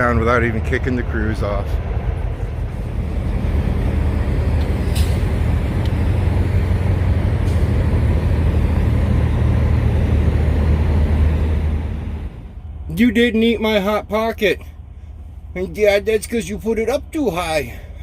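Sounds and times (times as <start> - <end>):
diesel truck engine drone: 0.0 - 18.0.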